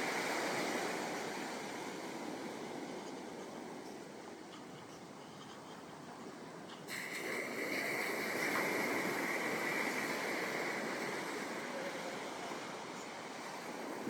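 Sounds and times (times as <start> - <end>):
ocean surf washing: 0.0 - 4.8, 6.2 - 14.0
wave breaking: 6.9 - 14.0.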